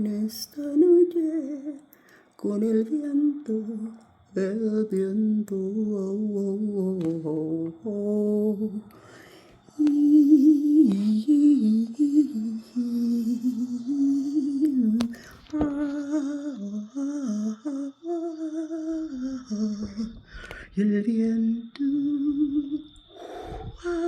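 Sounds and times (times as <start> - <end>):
woman humming a melody: 9.7 - 24.0.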